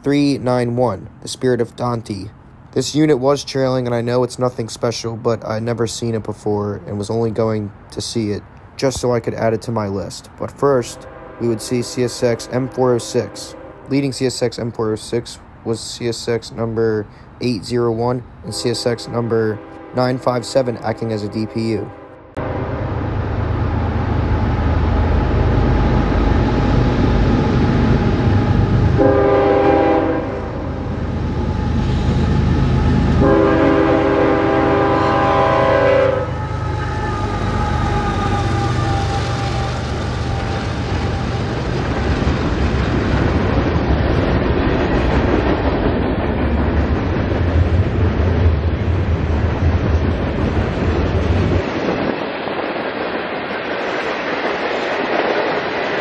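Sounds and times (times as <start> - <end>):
train horn blasts: 10.9 - 14.0, 18.5 - 20.6, 21.2 - 23.0, 29.0 - 30.7, 32.7 - 41.5.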